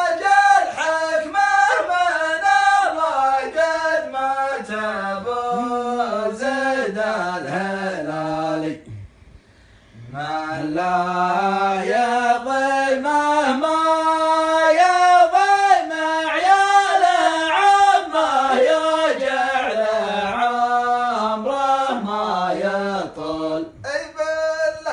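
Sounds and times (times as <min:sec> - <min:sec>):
man singing unaccompanied: 0:00.0 - 0:09.1, 0:10.0 - 0:24.9.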